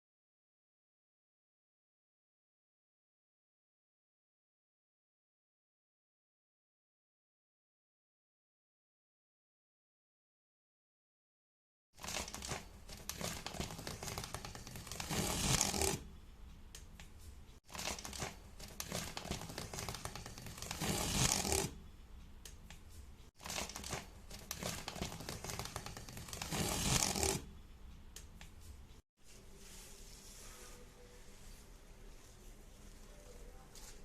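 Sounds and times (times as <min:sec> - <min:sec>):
crinkling handling sounds: 0:12.0 - 0:16.0, 0:17.2 - 0:21.6, 0:23.4 - 0:27.4.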